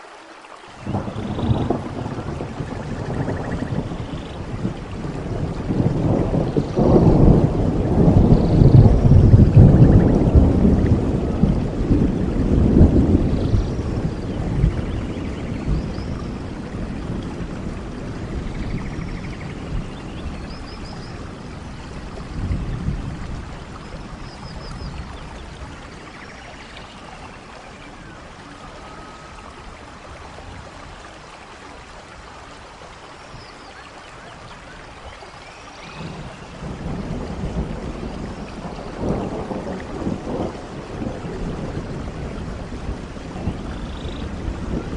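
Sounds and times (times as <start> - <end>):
steady rainfall: 0.0 - 44.9
distant thunder rumbles: 0.8 - 31.3, 34.2 - 44.9.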